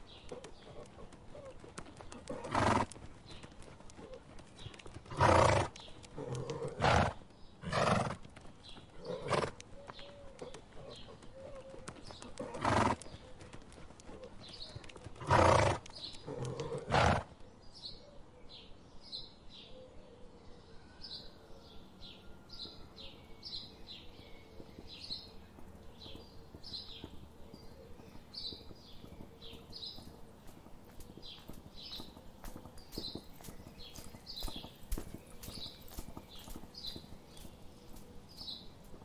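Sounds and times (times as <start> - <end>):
horse snorting: 2.1 - 3.0, 5.1 - 8.2, 12.3 - 13.0, 15.2 - 17.3.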